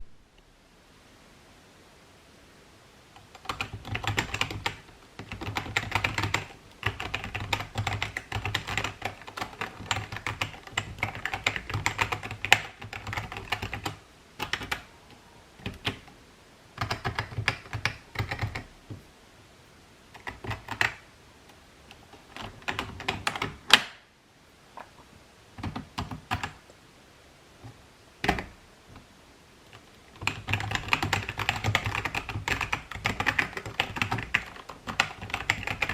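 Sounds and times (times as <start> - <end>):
computer keyboard typing: 3.2 - 14.9, 15.6 - 16.1, 16.8 - 18.7, 20.1 - 21.0, 21.9 - 23.8, 25.6 - 26.6, 28.2 - 28.6, 29.7 - 35.9.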